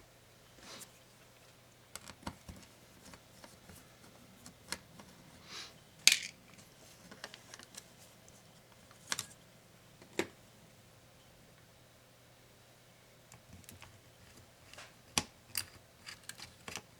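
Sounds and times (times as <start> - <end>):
small tools clicking and tapping: 13.3 - 16.9.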